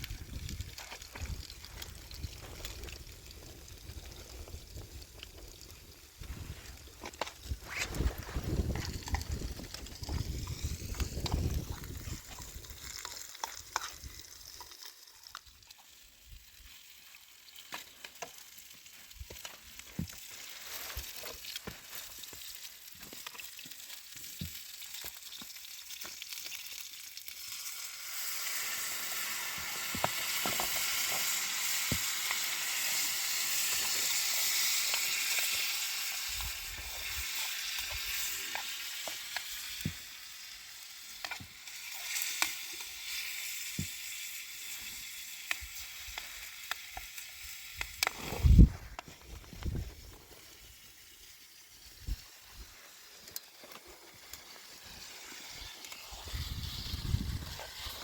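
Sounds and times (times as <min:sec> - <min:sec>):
crackling pops: 0:00.0 - 0:15.6, 0:45.4 - 0:50.1
food sizzling in hot oil: 0:00.0 - 0:58.0.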